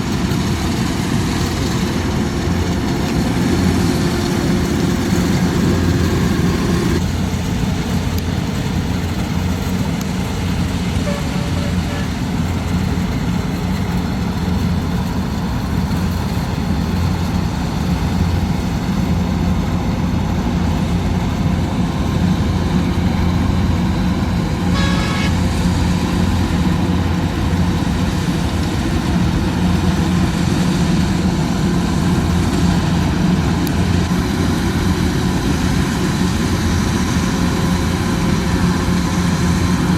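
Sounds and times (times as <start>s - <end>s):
harvester engine droning: 0.0s - 39.9s
high-pitched horn toot: 11.0s - 12.2s, 24.6s - 25.4s.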